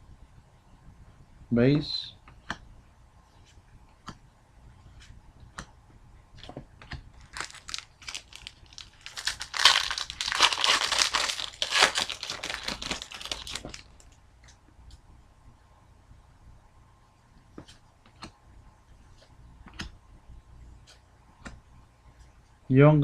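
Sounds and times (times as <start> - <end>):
wrapper crinkling and tearing: 7.2 - 14.2.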